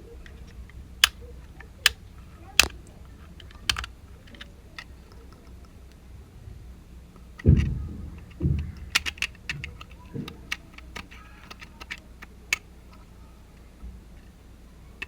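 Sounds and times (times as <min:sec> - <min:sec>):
light clicks and taps: 0:02.6 - 0:06.0, 0:07.2 - 0:14.3.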